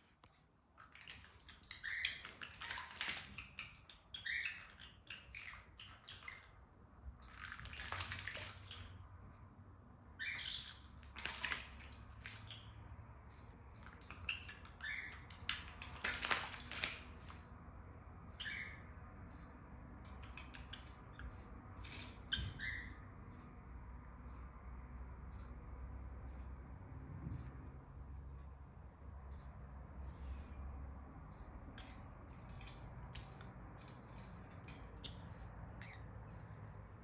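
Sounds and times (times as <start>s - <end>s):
bird splashing water: 0.8s - 6.5s, 7.2s - 9.2s, 10.2s - 12.9s, 13.7s - 17.5s
parrot chirps: 0.8s - 6.6s, 10.1s - 11.6s, 13.8s - 17.0s, 18.2s - 19.5s, 21.9s - 23.2s, 34.8s - 36.4s.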